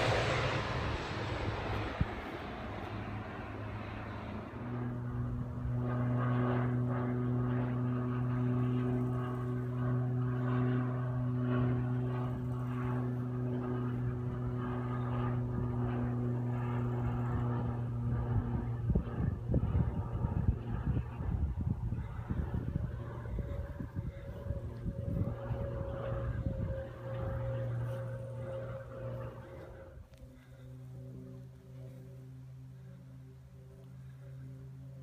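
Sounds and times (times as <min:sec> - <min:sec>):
wind buffeting microphone: 0:00.0 - 0:03.2, 0:15.1 - 0:30.1
propeller plane drone: 0:00.0 - 0:35.0.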